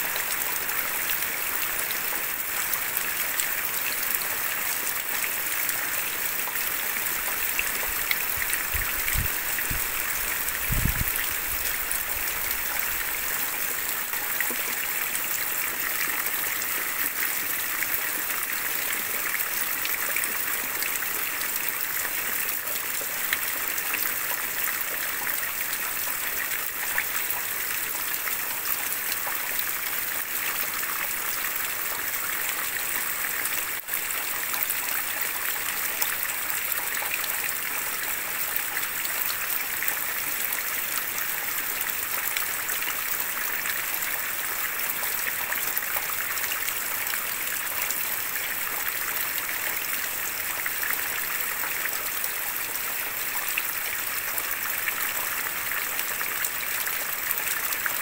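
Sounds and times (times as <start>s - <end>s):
heavy rain: 0.0s - 35.6s.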